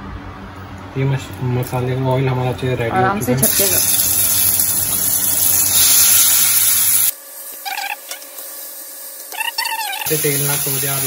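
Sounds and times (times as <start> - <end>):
food sizzling in hot oil: 3.4 - 11.0.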